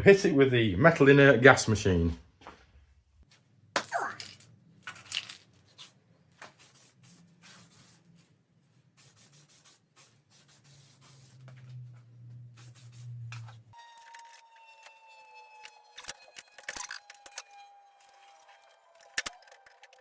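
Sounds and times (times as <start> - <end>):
scratchy rubbing and hissing strokes: 5.6 - 13.8
low steady hum: 11.2 - 19.5.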